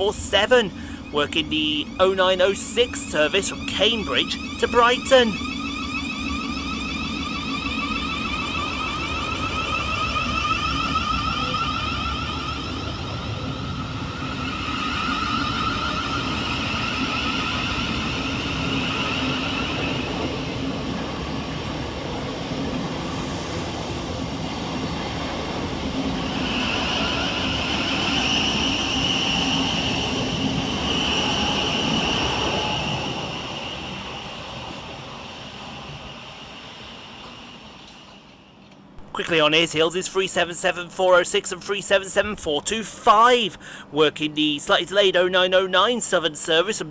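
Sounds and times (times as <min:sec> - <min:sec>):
wheels rumbling on rails: 0:00.0 - 0:39.1
electric train whining: 0:00.0 - 0:46.9.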